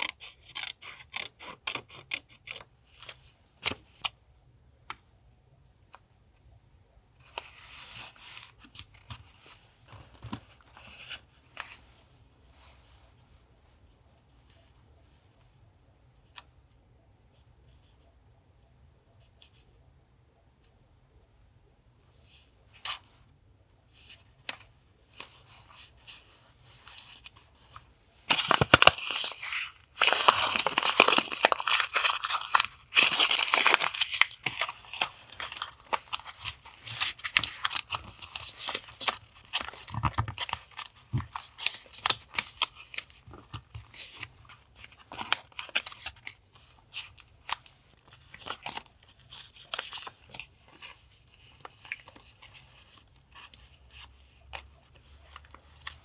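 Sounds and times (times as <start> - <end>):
paper rustling: 24.0 - 56.0
paper tearing and crinkling: 28.3 - 47.7.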